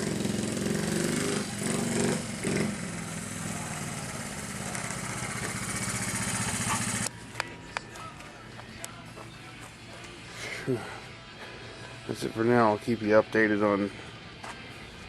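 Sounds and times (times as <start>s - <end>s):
minibike engine revving: 0.0s - 7.1s.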